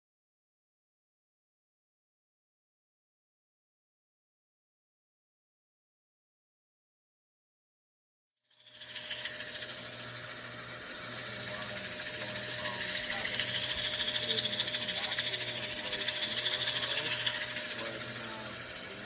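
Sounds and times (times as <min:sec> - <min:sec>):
lathe motor hum: 0:08.6 - 0:19.0
sanding hiss on spinning wood: 0:08.6 - 0:19.0.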